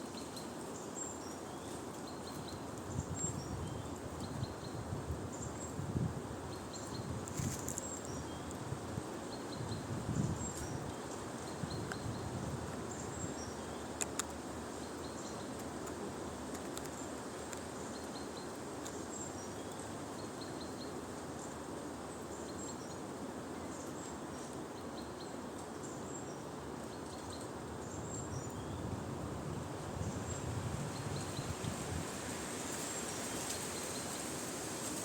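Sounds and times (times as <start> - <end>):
small birds chirping: 6.5 - 29.0.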